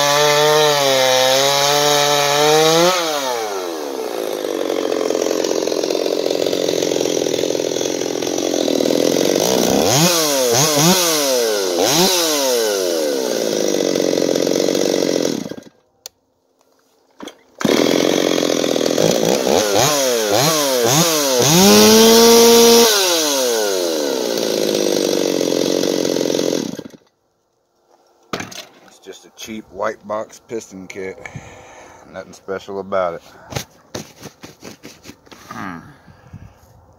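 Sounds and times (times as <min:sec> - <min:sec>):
chainsaw cutting wood: 0:00.0 - 0:15.8, 0:17.2 - 0:27.2, 0:33.5 - 0:35.7.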